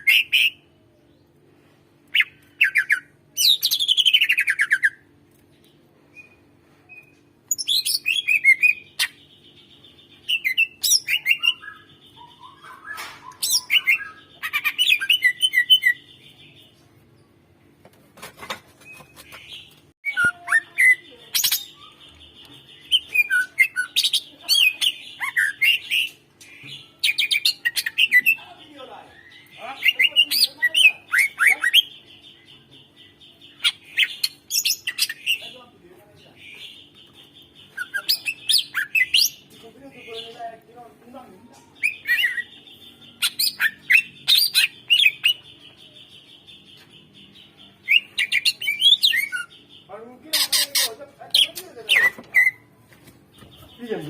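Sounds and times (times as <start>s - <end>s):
bird singing chirps and whistles: 9.8s - 16.3s, 18.9s - 24.2s, 37.6s - 39.4s, 41.8s - 49.9s, 51.4s - 52.7s.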